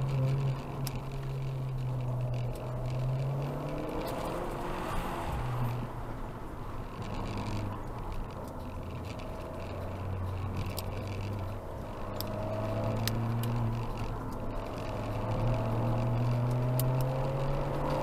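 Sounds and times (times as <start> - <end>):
car engine revving: 0.0 - 18.0
road and tyre noise: 0.0 - 18.0
sharp ticks: 6.8 - 18.0.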